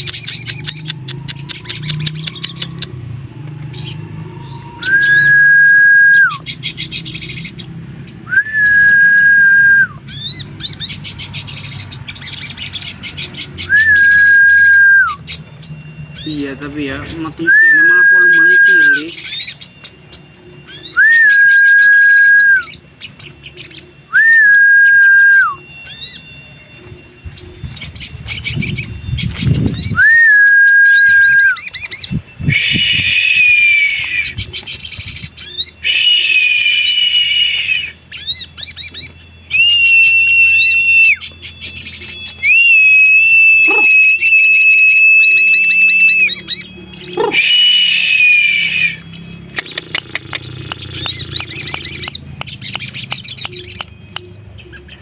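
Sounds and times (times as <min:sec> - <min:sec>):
bird whistling and trilling: 0:00.0 - 0:03.0, 0:03.7 - 0:55.0.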